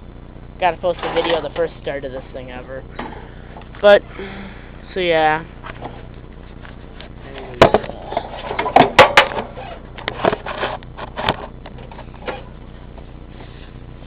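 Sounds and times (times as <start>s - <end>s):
knocks and rattles on engine: 5.6s - 13.2s.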